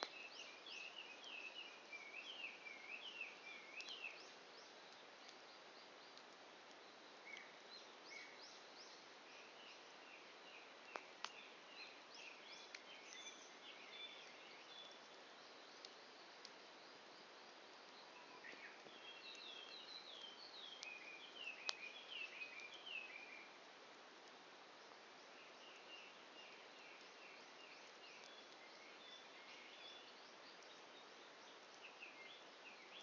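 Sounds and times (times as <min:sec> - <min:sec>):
campfire pops: 0:00.0 - 0:00.4, 0:03.8 - 0:05.4, 0:06.0 - 0:07.6, 0:10.8 - 0:11.5, 0:12.1 - 0:13.3, 0:21.6 - 0:22.0
small birds chirping: 0:00.0 - 0:33.0.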